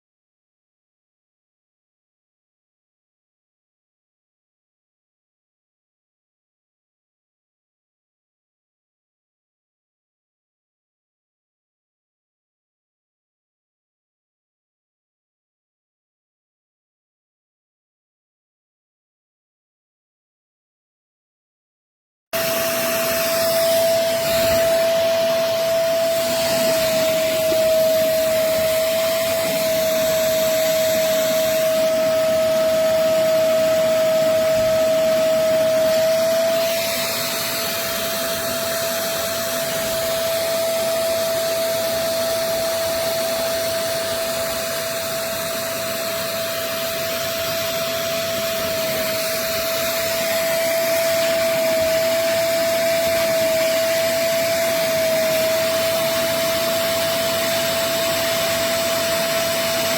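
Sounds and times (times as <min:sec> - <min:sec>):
suction motor whining: 0:22.4 - 0:59.9.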